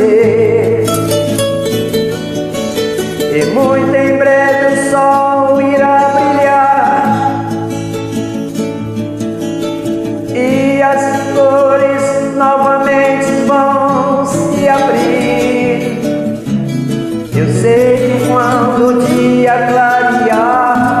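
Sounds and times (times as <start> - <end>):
person singing: 0.0 - 7.8, 10.2 - 16.5, 17.1 - 21.0
acoustic guitar: 0.0 - 21.0.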